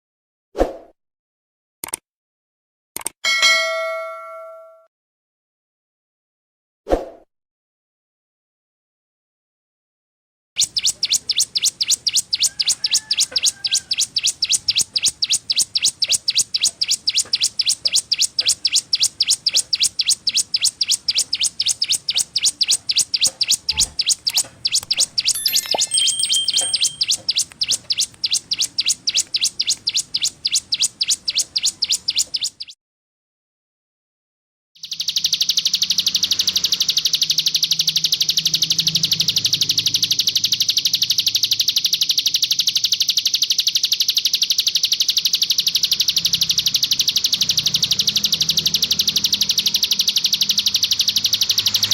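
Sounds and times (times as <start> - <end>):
bird buzzing trill: 10.6 - 32.7
bird repeating sharp high note: 25.3 - 28.1.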